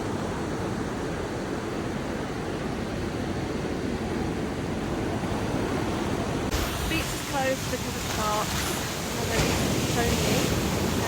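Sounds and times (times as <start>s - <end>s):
wind: 0.0s - 11.0s
surf: 3.4s - 11.0s.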